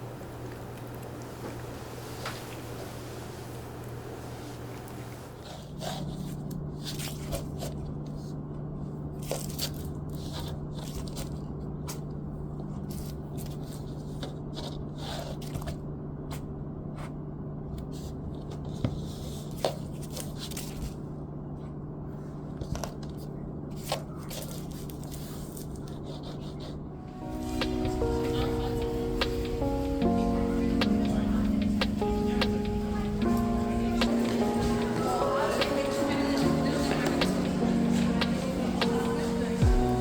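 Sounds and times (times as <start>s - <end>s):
steady low hum: 0.0s - 10.8s, 26.7s - 40.0s.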